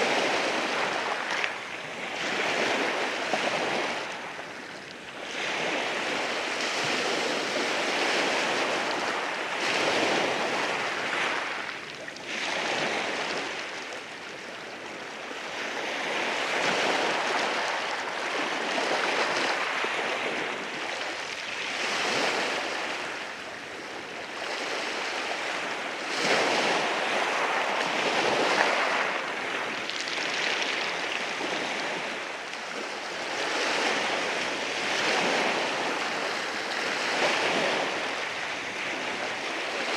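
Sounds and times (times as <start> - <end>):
sea waves washing over rocks: 15.6 - 39.9.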